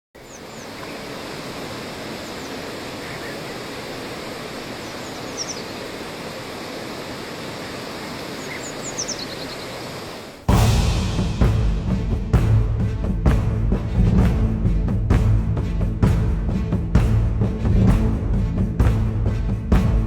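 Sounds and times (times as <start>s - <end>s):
steady rushing noise: 0.2s - 20.0s
loud music with deep drum hits: 10.5s - 20.0s.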